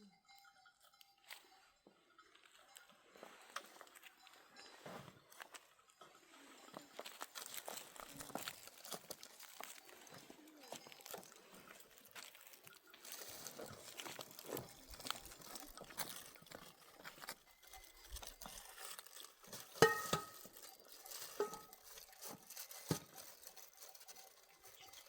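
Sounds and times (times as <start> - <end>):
small clicks and rustling: 6.6 - 25.0.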